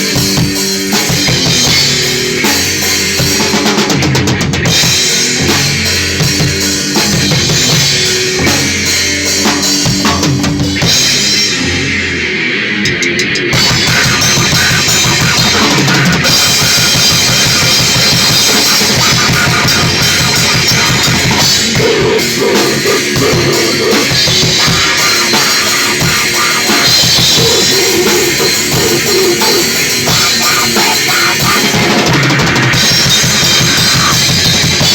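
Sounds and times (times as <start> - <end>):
grindcore band playing: 0.0 - 34.9
rapid drum hits: 13.6 - 34.9.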